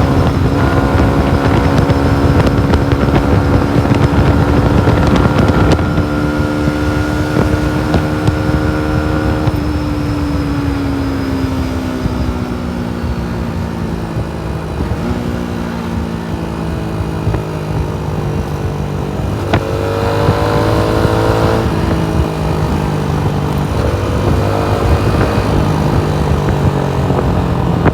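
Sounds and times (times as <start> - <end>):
motorcycle engine while riding: 0.0 - 27.9.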